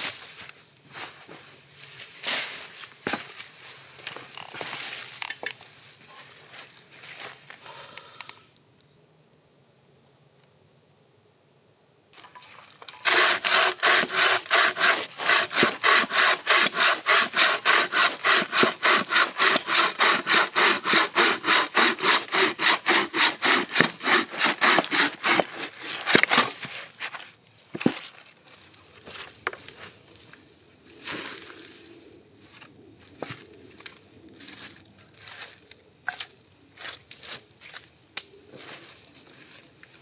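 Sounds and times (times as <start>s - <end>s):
hand saw cutting wood: 13.0s - 26.6s.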